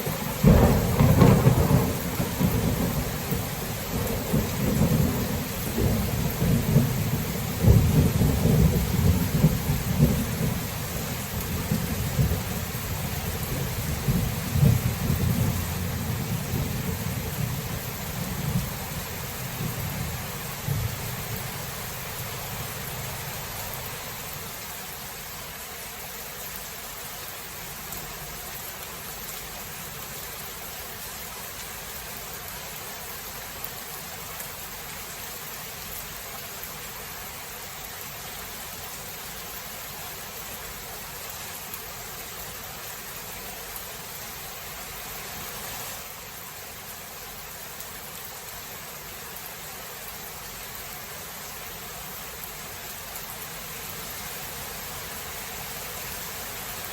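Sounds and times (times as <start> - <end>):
steady rain hiss: 0.0 - 56.9
low thunder rumble: 0.4 - 10.7, 11.4 - 23.2.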